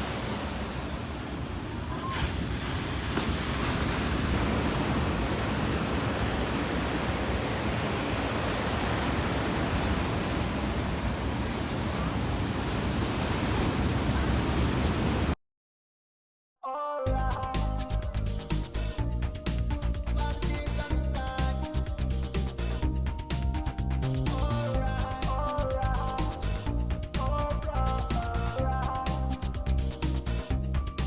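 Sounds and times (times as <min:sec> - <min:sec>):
ocean surf rushing: 0:00.0 - 0:15.4
wind on microphone: 0:00.0 - 0:15.4
music: 0:16.7 - 0:31.0.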